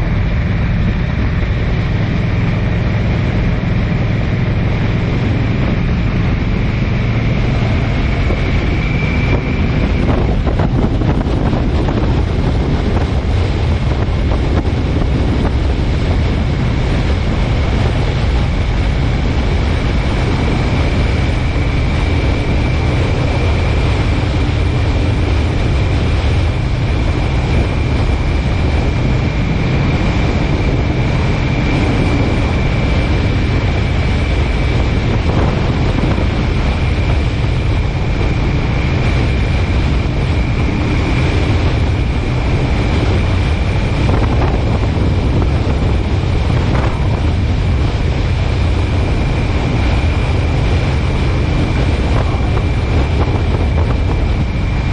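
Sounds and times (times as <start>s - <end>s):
car road and wind noise: 0.0s - 54.9s.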